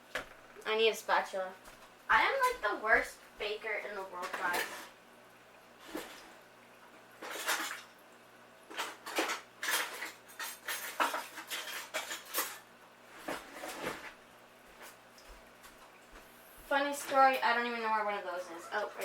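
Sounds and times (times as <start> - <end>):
kitchen utensils clattering: 7.2 - 7.8, 8.7 - 12.7.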